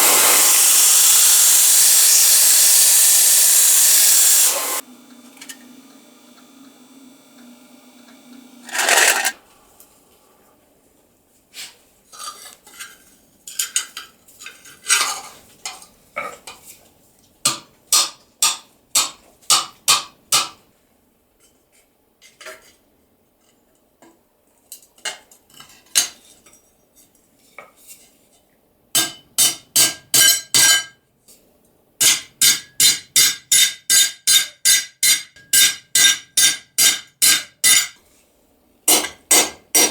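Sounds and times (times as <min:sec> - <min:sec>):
hammer striking steel sheet: 0:32.0 - 0:38.0.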